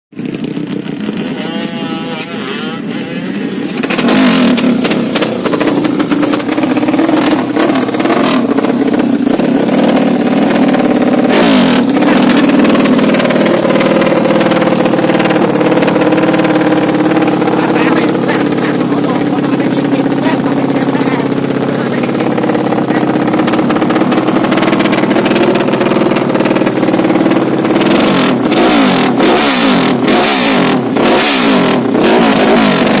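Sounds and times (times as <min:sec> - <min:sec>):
motorcycle engine running: 0:00.1 - 0:33.0.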